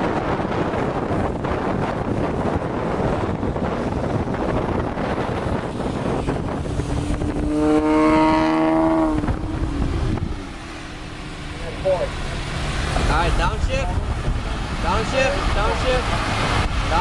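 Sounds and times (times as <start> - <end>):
car exhaust roaring: 0.0 - 17.0
wind and road noise: 0.0 - 17.0.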